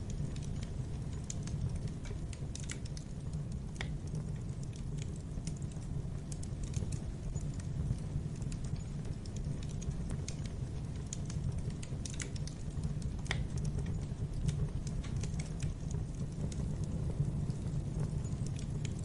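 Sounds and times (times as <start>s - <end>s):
low steady rumble: 0.0s - 19.0s
wood fire crackling: 0.0s - 19.0s.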